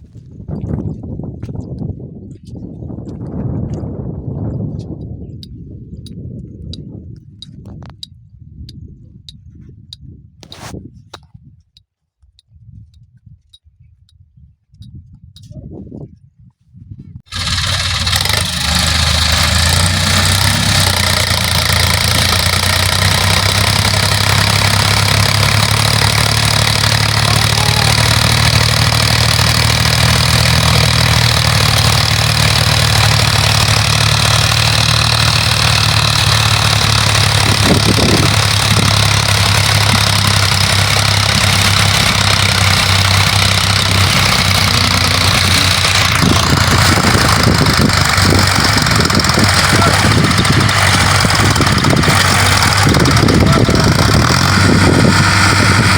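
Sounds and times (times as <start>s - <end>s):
tractor diesel engine running: 17.3s - 55.9s.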